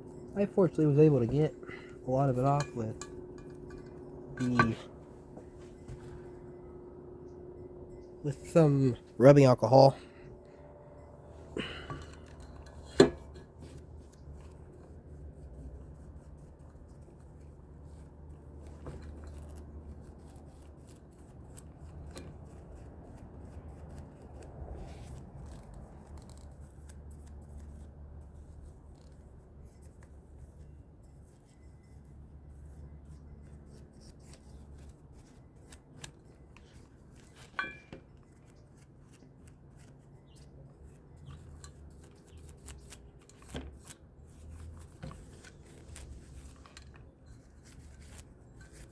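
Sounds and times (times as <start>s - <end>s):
low steady hum: 0.0s - 26.5s, 27.9s - 48.9s
fan parts rubbing and scraping: 0.0s - 48.9s.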